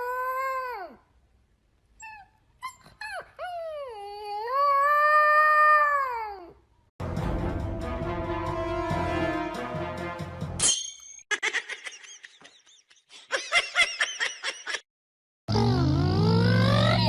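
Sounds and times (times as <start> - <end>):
dog whining and howling: 0.0 - 1.0, 2.0 - 6.6.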